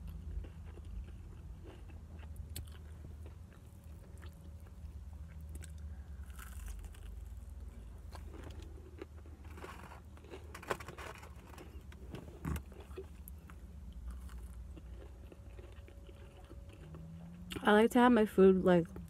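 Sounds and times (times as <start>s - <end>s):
person chewing crunchy food: 0.0s - 17.6s
low hum: 0.0s - 19.0s.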